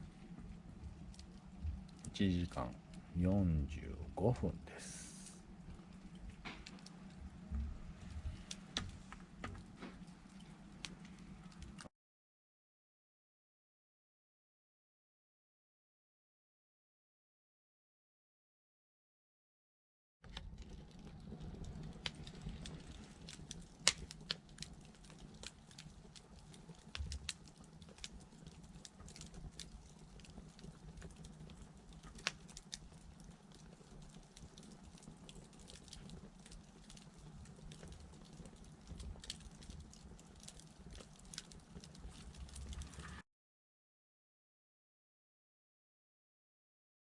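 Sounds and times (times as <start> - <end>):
low steady rumble: 0.0 - 11.8
wood fire crackling and popping: 0.0 - 11.9, 20.3 - 43.2.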